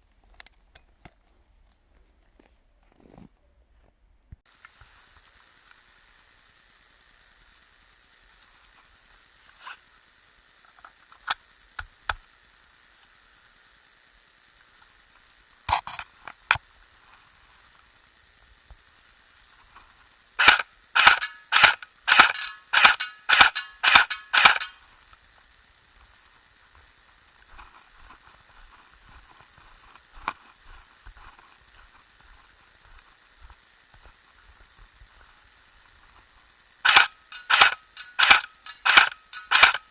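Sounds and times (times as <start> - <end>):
airsoft shotgun shots: 20.4 - 24.7, 36.8 - 39.8.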